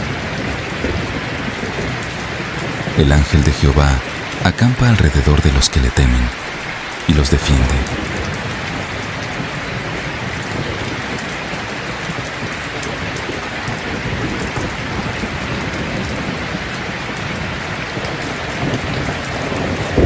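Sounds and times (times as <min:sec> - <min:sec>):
low rumble of thunder: 0:00.0 - 0:03.0
heavy rain hissing: 0:00.0 - 0:20.0.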